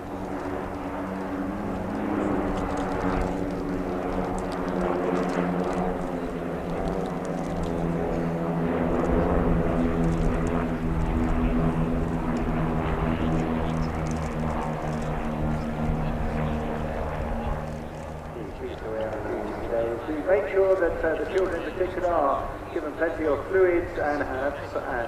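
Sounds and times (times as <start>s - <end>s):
aircraft engine droning: 0.0s - 25.0s.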